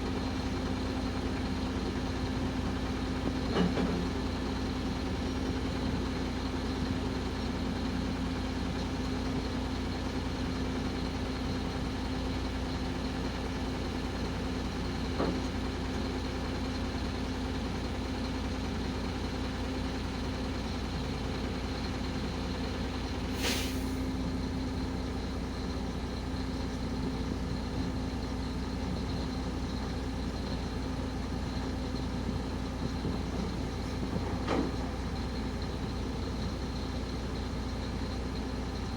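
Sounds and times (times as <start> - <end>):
truck diesel engine droning: 0.0 - 38.9
air hiss: 23.3 - 24.1.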